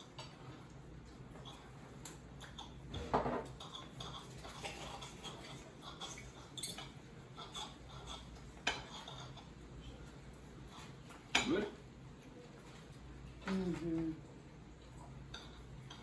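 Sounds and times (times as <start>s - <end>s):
cutlery clinking on plates: 1.4s - 11.7s.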